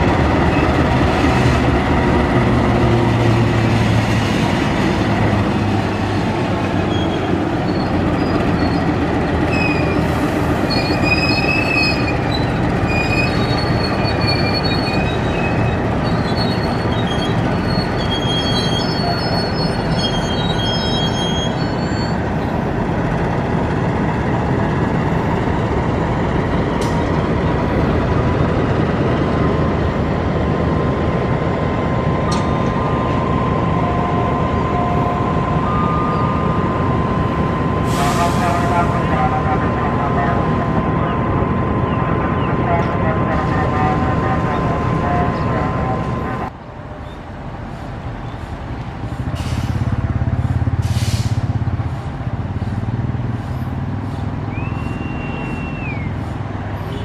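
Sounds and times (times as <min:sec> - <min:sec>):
train wheels rumbling on rails: 0:00.0 - 0:57.0
high-pitched wheel squeals: 0:06.8 - 0:22.2.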